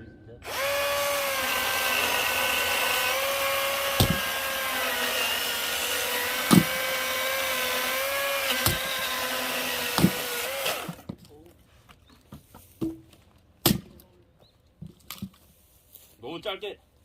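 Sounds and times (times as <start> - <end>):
electric chainsaw whine: 0.4 - 11.1
dull thumps: 2.5 - 4.9, 6.2 - 7.1.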